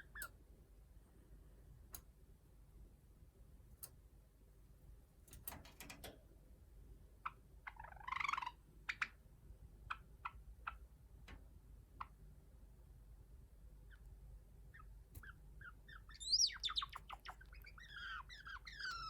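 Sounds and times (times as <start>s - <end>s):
sparrow singing: 14.7s - 19.0s.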